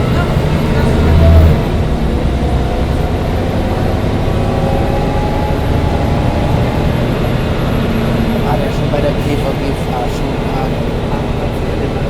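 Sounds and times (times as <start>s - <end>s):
bus engine and running noise: 0.0s - 12.0s.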